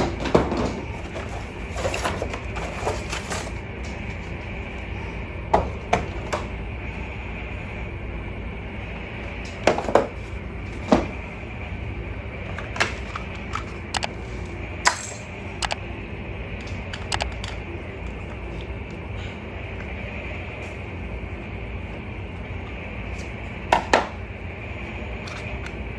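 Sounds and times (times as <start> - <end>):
steady hum: 0.0 - 25.9.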